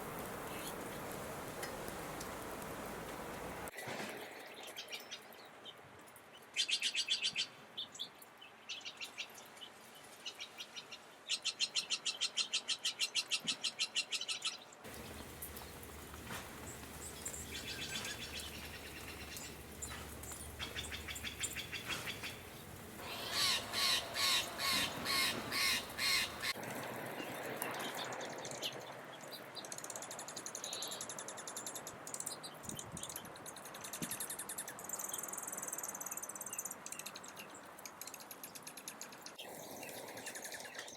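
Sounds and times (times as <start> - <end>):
harsh loud bird calls: 14.9 - 26.6
soft high bird chirps: 14.9 - 26.6
rapid high trilled birdsong: 14.9 - 40.9.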